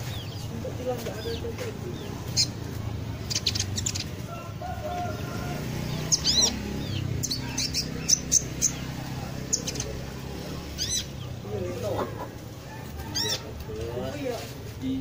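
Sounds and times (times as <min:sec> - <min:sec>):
small bird chirping: 0:00.0 - 0:04.3, 0:05.1 - 0:11.8.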